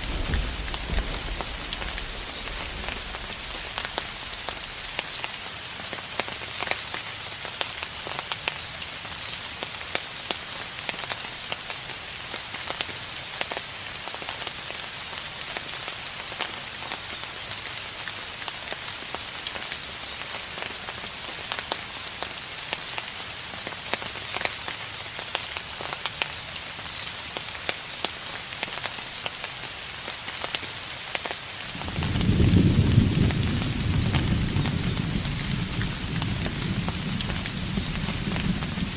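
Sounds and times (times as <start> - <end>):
distant thunder rumble: 0.0 - 5.2, 31.8 - 38.9
steady rain falling: 0.0 - 38.9.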